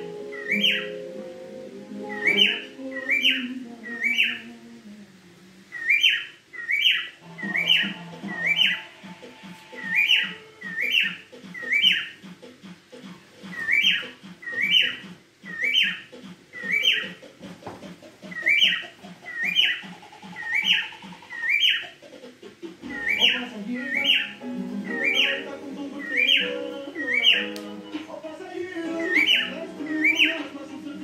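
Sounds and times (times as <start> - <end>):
cockatiel whistling calls: 0.3 - 1.0, 2.1 - 4.4, 5.7 - 8.9, 9.7 - 12.2, 13.5 - 17.2, 18.2 - 22.0, 22.8 - 25.4, 26.0 - 27.6, 28.9 - 30.4.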